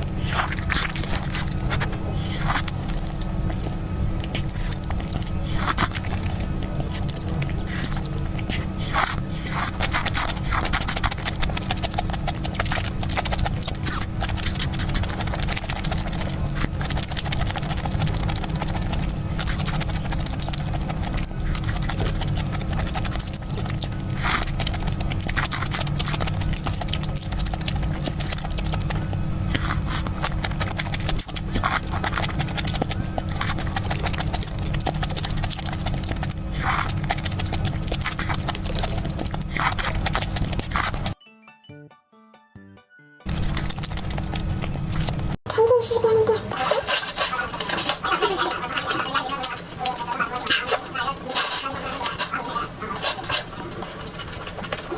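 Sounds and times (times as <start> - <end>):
close-miked chewing: 0.0 - 41.2, 43.3 - 54.9
background music: 41.2 - 43.3.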